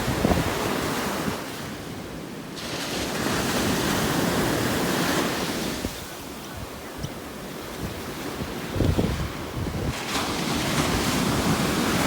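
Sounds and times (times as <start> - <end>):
wind buffeting microphone: 0.0 - 1.5, 5.6 - 12.0
ocean surf breaking: 0.0 - 12.0.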